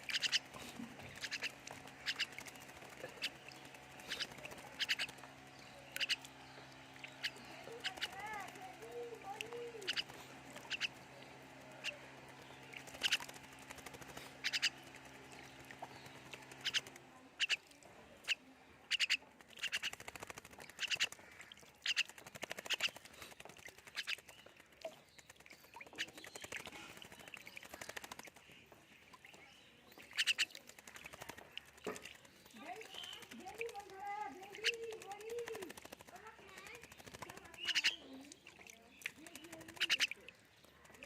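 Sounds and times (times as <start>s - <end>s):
low hum: 0.0s - 17.8s.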